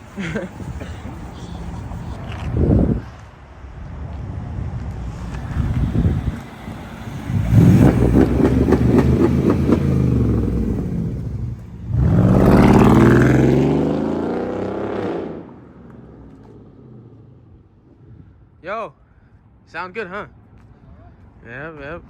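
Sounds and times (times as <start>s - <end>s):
car engine revving: 5.1s - 17.6s.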